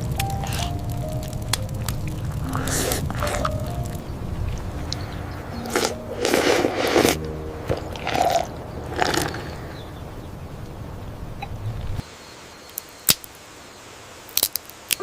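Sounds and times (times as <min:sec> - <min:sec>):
crunching: 0:00.0 - 0:09.8, 0:14.3 - 0:15.0.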